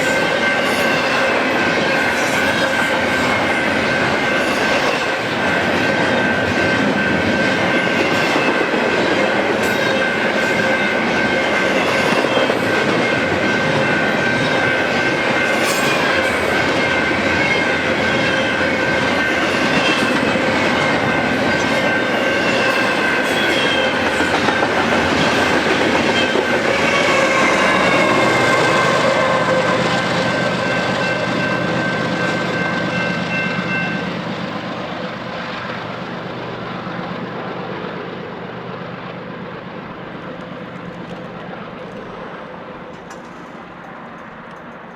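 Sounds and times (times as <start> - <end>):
train cars rumbling past: 0.0 - 44.9
wheels clicking over rail joints: 40.4 - 44.9.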